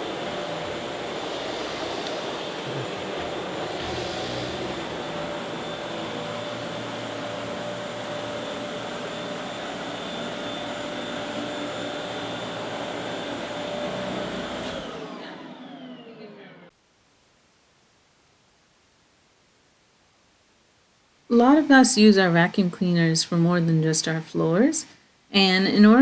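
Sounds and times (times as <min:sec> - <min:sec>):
vacuum cleaner motor running: 0:00.0 - 0:16.6
vacuum motor winding down: 0:00.0 - 0:16.6.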